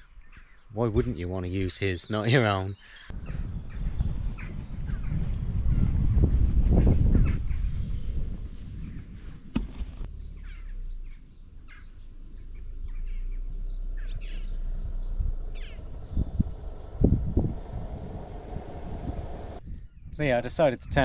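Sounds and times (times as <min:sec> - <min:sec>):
birds calling: 0:00.0 - 0:05.8, 0:08.8 - 0:19.6
steady low rumble: 0:03.1 - 0:09.2, 0:09.8 - 0:19.9
low thumps: 0:08.2 - 0:19.6.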